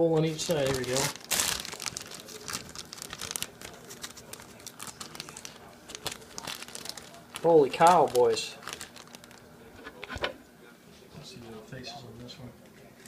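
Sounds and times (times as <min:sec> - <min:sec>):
plastic bag crinkling: 0:00.2 - 0:09.6.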